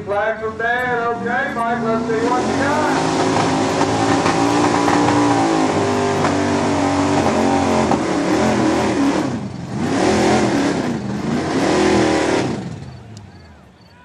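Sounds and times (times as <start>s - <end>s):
truck engine under load: 0.0s - 13.6s.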